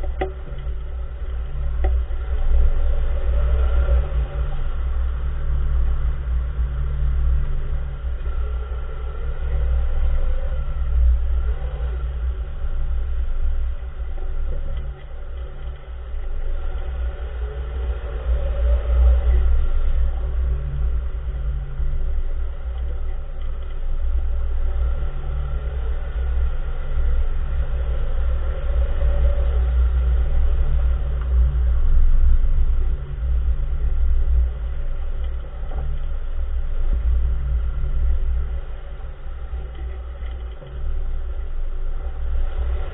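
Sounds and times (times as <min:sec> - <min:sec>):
car road rumble: 0:00.0 - 0:42.9.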